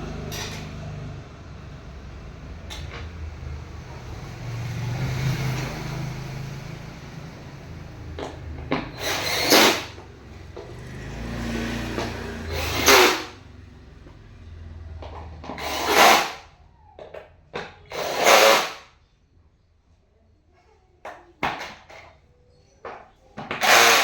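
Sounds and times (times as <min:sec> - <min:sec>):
power drill driving screws: 0:08.2 - 0:10.0, 0:11.8 - 0:13.4, 0:15.5 - 0:16.4, 0:17.9 - 0:18.8, 0:23.5 - 0:24.0.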